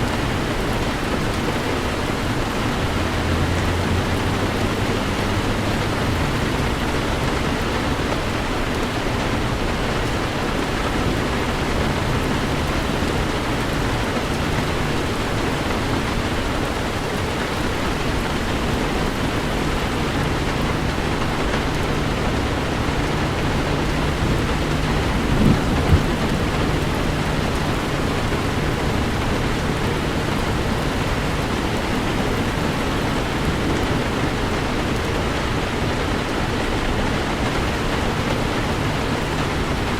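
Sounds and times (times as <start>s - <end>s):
heavy rain on car: 0.0s - 39.9s
low engine and tyre hum: 0.0s - 39.9s.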